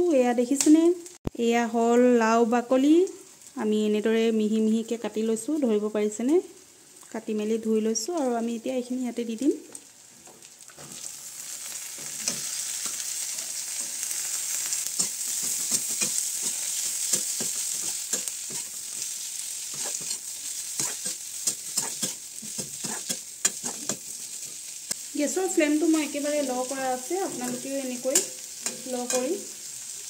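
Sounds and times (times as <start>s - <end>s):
vegetable peel sizzling in oil: 9.6s - 30.0s
metal spoon scraping a pan: 10.8s - 25.0s, 26.0s - 29.8s.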